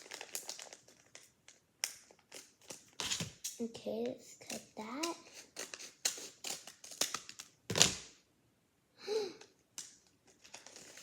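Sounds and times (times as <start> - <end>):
loud paper crackle: 0.0 - 1.3, 10.4 - 11.0
paper crinkling: 0.0 - 3.2, 10.2 - 11.0.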